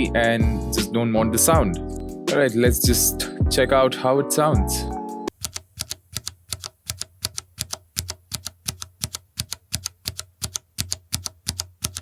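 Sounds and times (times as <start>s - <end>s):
keyboard typing clacks: 5.3s - 12.0s.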